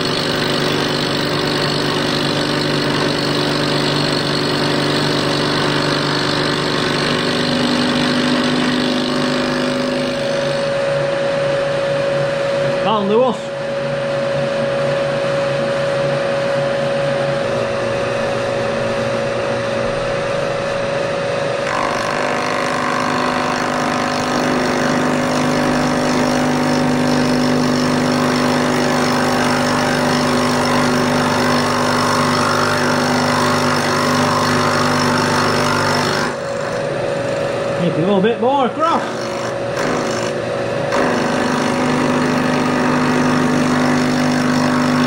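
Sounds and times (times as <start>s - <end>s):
milling machine cutting metal: 0.0s - 12.0s, 17.0s - 45.0s.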